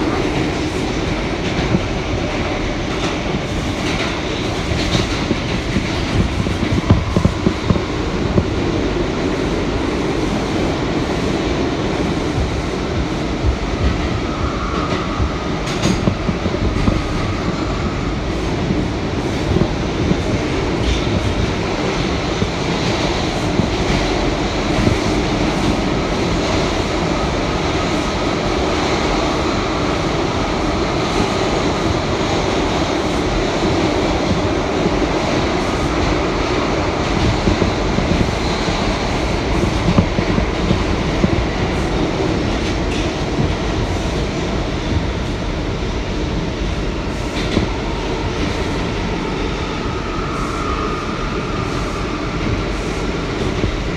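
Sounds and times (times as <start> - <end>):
subway train wheel and rail rumble: 0.0 - 53.9.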